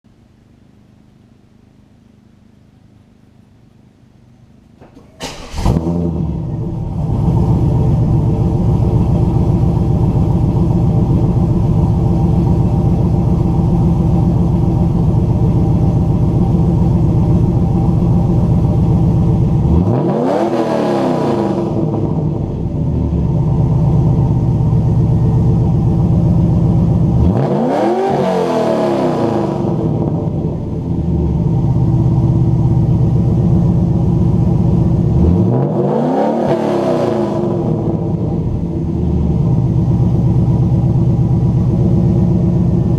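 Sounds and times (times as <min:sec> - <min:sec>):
car engine lumpy idle: 0:04.5 - 0:20.1, 0:21.6 - 0:27.4, 0:29.7 - 0:35.6, 0:37.6 - 0:42.9
car engine starting: 0:04.7 - 0:42.9
engine revving: 0:04.9 - 0:23.2, 0:26.4 - 0:31.1, 0:34.4 - 0:39.4.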